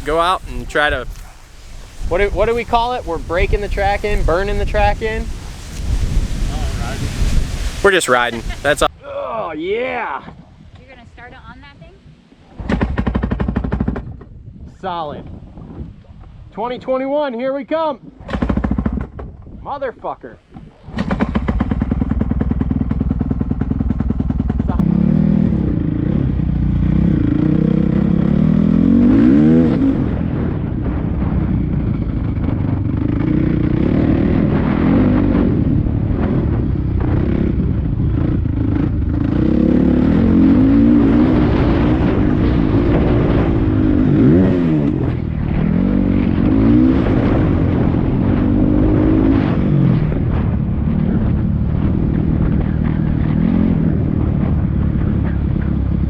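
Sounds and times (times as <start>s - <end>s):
motocross bike engine revving: 0.0s - 8.9s, 20.9s - 56.0s.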